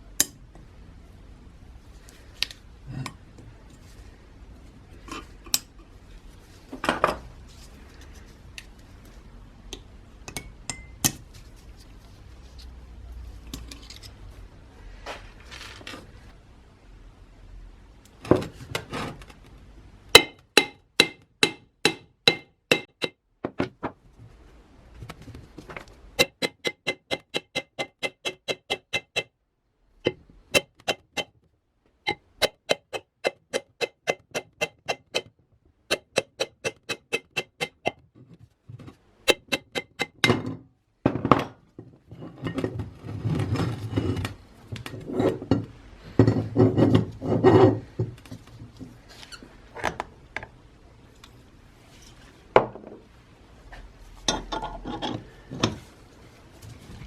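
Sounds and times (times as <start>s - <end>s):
scraping and rubbing: 3.6s - 9.3s, 11.2s - 16.4s, 42.0s - 49.7s.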